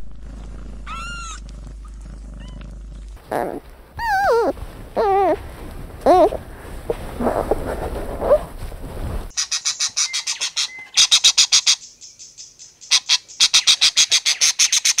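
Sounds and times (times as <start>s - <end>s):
low muffled noise: 0.0s - 9.3s.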